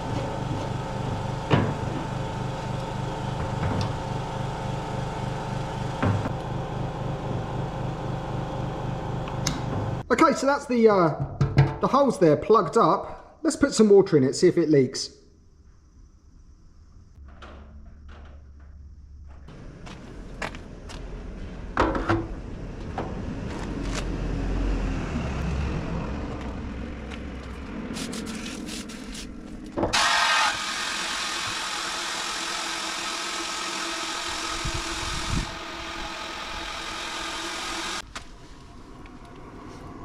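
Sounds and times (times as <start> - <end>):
fuel tank knocks and clatter: 11.2 - 11.8
hose water running into tank: 29.9 - 38.0.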